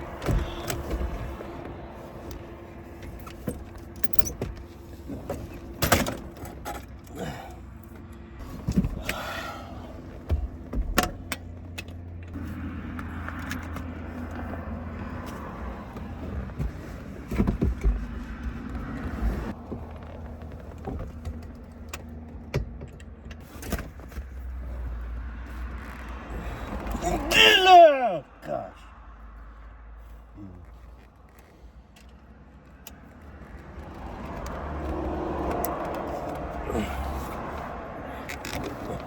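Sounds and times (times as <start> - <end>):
low hum inside a car: 0.0 - 39.0.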